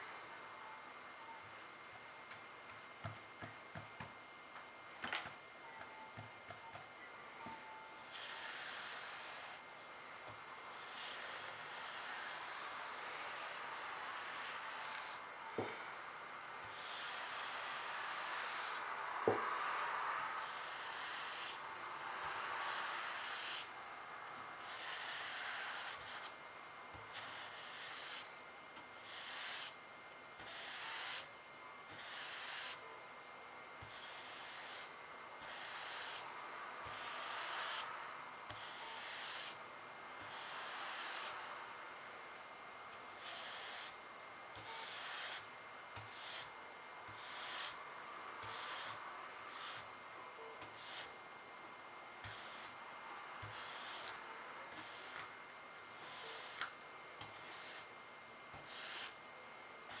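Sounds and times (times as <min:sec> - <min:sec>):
paintbrush strokes on surface: 0:22.2 - 0:23.8.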